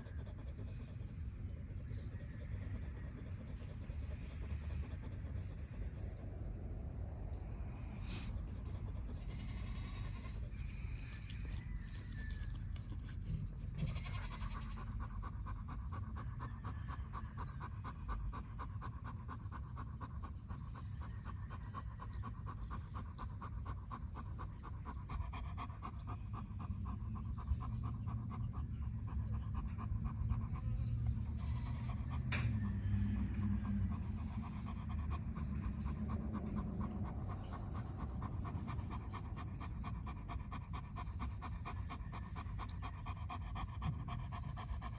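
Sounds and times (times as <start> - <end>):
dog panting: 0.0 - 44.9.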